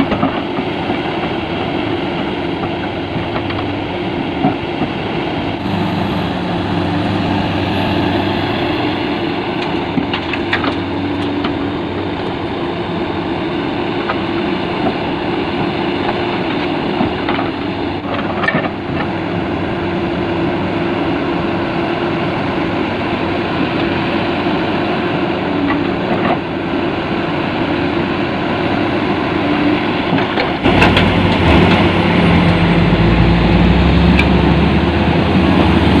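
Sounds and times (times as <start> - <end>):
heavy diesel machinery running: 0.0 - 36.0
deep engine rumble: 1.2 - 14.8, 30.4 - 36.0.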